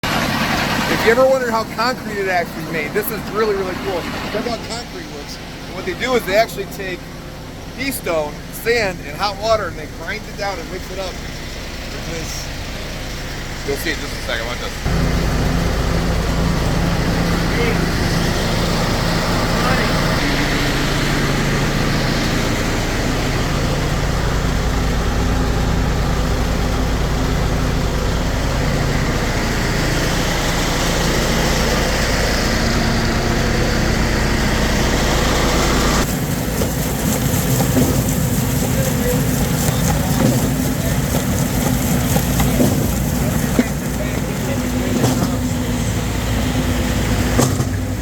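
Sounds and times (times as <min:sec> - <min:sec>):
mixer truck engine running: 0:00.0 - 0:48.0.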